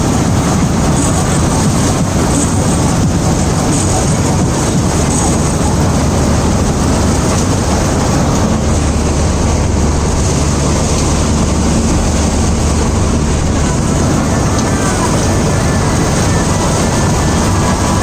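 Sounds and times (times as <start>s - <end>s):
combine harvester engine drone: 0.0s - 18.0s
low hum: 0.0s - 18.0s
working machinery noise: 0.0s - 18.0s.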